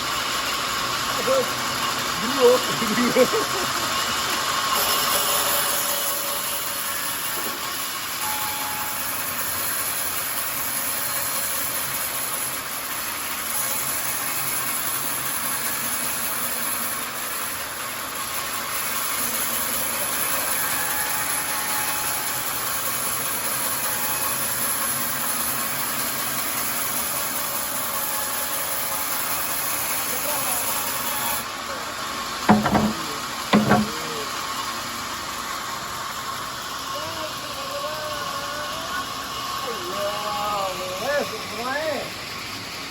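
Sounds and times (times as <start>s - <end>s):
sawmill running: 0.0s - 8.2s, 32.5s - 34.3s.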